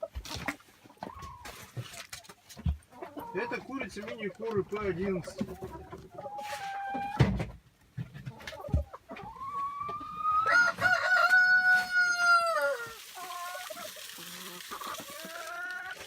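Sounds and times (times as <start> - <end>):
short chicken calls: 9.2 - 16.0
rooster crowing: 10.4 - 13.0.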